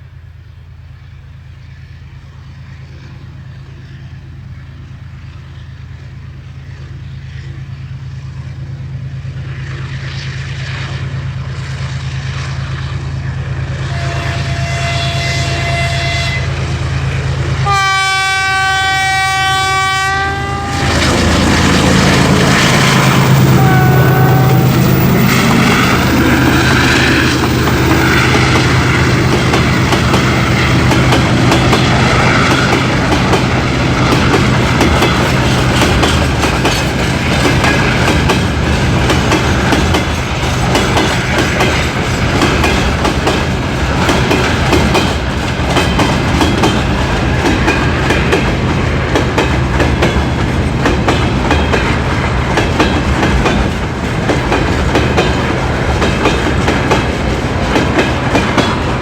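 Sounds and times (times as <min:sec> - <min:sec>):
diesel locomotive engine hum: 0:00.0 - 0:59.0
train wheels clicking over rail joints: 0:20.7 - 0:59.0.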